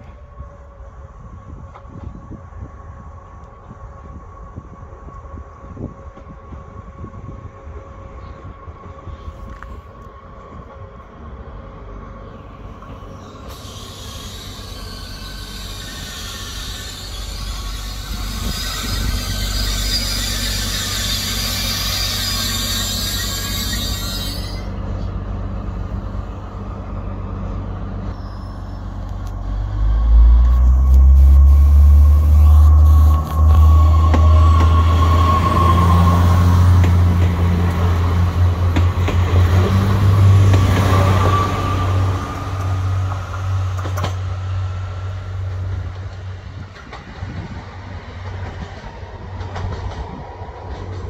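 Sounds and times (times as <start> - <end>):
train rumble: 0.0 - 51.0
wheel and brake squeal: 13.0 - 25.1, 28.0 - 29.1, 31.4 - 37.0
deep diesel engine throb: 28.8 - 40.8.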